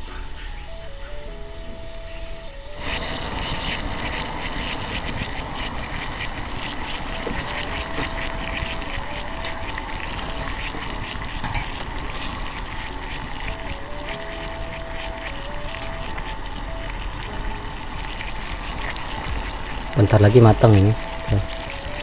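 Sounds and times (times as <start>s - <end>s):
water boiling in a pot: 2.7s - 22.0s
sharp metal clinks: 11.4s - 11.8s.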